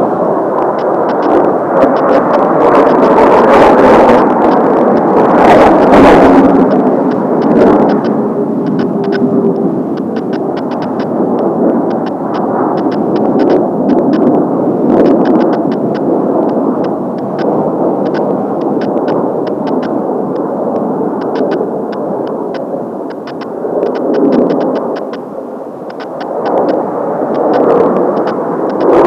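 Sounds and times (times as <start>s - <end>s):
jet engines roaring: 0.0s - 29.0s
faint ticks: 0.6s - 1.4s, 6.6s - 14.2s, 15.0s - 25.2s, 25.9s - 26.8s, 27.4s - 29.0s.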